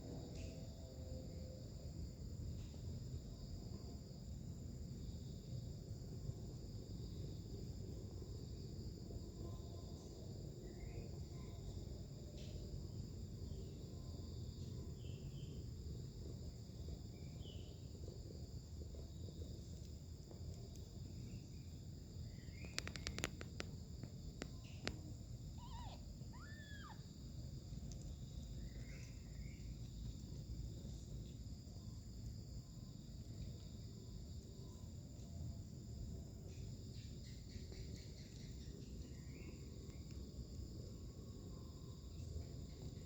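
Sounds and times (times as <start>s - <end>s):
low background rumble: 0.0s - 37.4s
insects chirping: 0.0s - 43.0s
sharp clicks: 22.6s - 23.7s.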